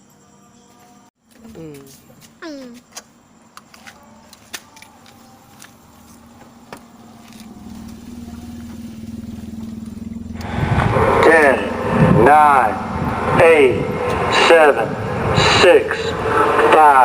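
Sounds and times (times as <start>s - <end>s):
vehicle engine running: 5.4s - 16.8s.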